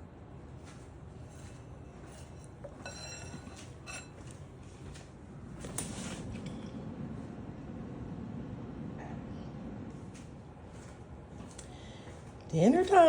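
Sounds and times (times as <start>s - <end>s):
kitchenware clinking: 1.3s - 4.4s.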